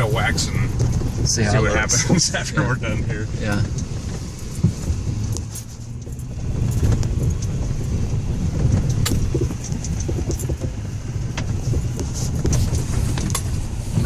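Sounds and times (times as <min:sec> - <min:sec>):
truck low rumble: 0:00.0 - 0:14.0
rattles and knocks: 0:03.6 - 0:14.0.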